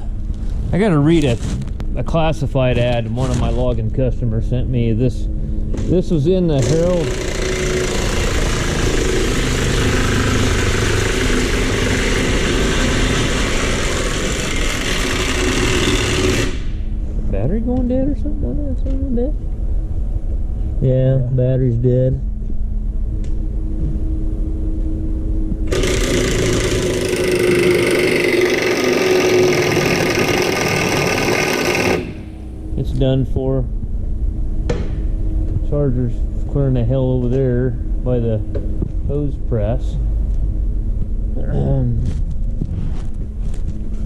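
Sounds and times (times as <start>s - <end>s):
machine running loudly: 5.8s - 17.6s, 25.5s - 33.0s.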